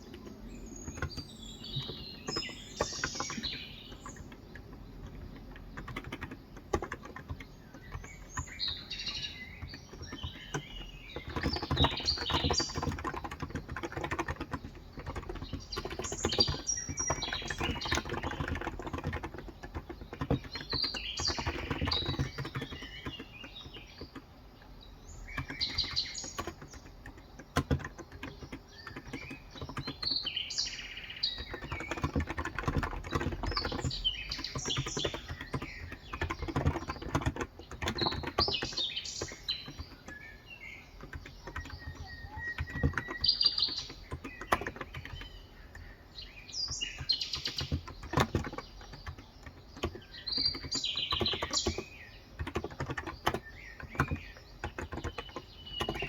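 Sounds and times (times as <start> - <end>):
small birds chirping: 0.0 - 56.0
typing on a keyboard: 0.0 - 56.0.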